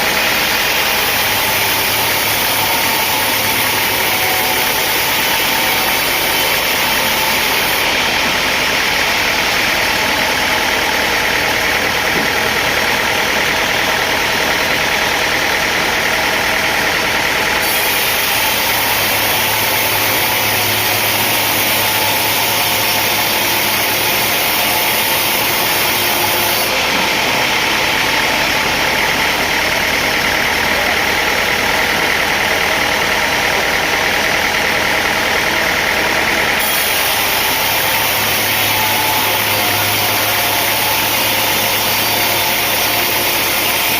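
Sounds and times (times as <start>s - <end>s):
sawmill machinery engine drone: 0.0s - 43.9s.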